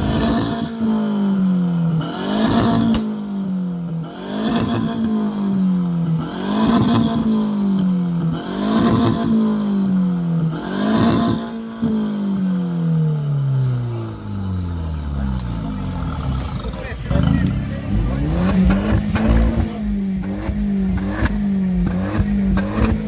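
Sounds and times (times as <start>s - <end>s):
car engine revving: 0.0s - 23.0s
exhaust cracks: 14.6s - 23.0s.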